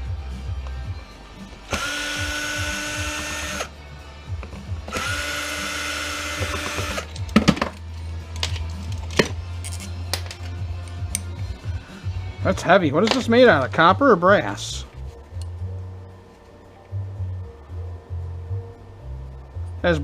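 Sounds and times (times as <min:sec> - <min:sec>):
power drill running: 0:01.7 - 0:03.7, 0:04.9 - 0:07.1
metal parts clicking and knocking: 0:06.4 - 0:11.3.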